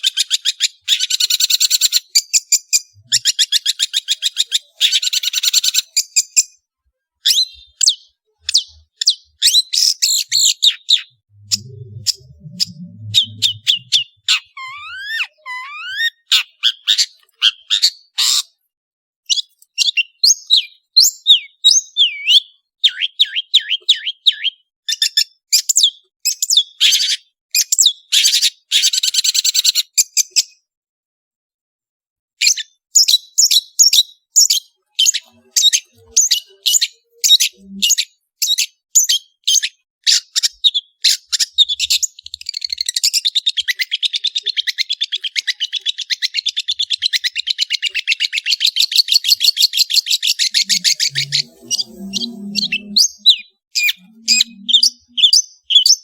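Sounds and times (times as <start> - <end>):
shrike singing varied song: 7.3 - 18.4, 43.4 - 56.0.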